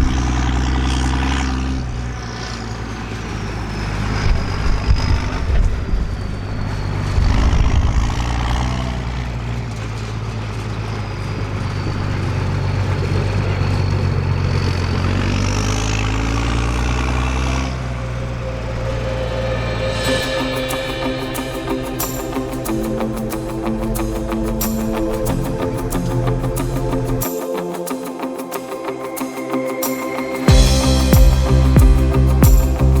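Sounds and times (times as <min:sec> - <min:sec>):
diesel farm machinery running: 0:00.0 - 0:27.2
faint high whine: 0:17.9 - 0:33.0.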